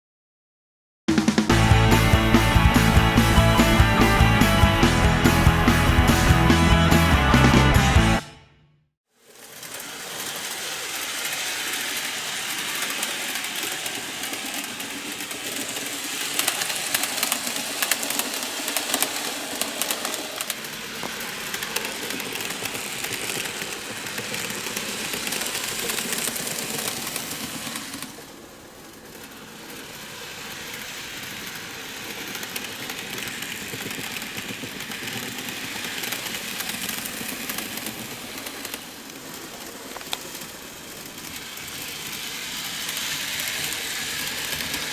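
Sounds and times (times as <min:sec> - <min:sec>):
model train motor whirring: 0:09.2 - 0:44.9
crackly clicks: 0:11.8 - 0:29.9, 0:32.0 - 0:44.9.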